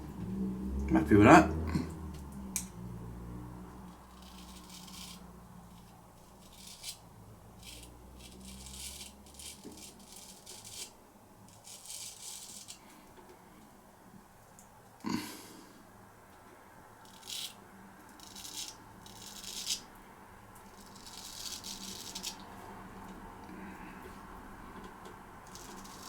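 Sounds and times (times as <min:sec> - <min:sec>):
low steady hum: 0:00.0 - 0:09.1.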